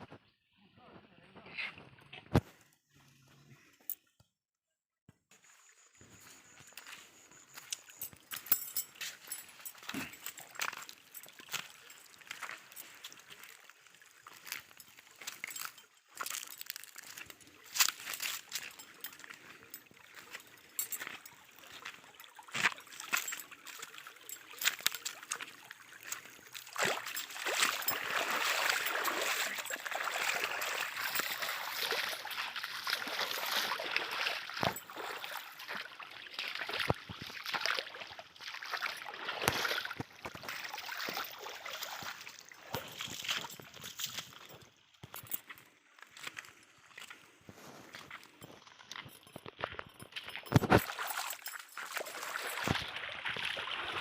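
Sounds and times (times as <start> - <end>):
water trickling and splashing: 5.4 - 54.0.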